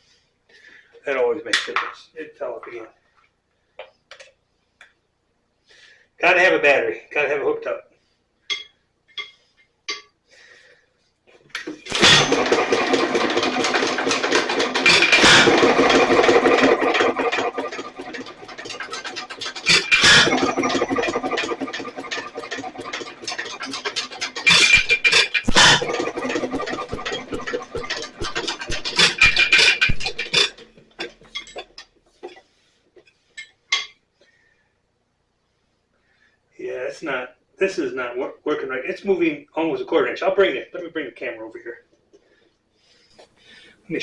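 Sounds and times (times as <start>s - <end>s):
engine firing strokes: 11.9s - 30.6s
hit-and-miss engine clattering: 11.9s - 31.8s.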